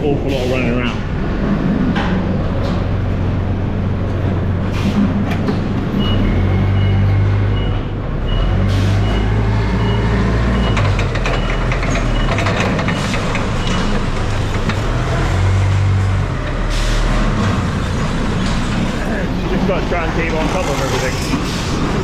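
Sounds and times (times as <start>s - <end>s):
heavy farm machinery engine hum: 0.0s - 22.0s
reversing alarm beeping: 6.0s - 14.2s.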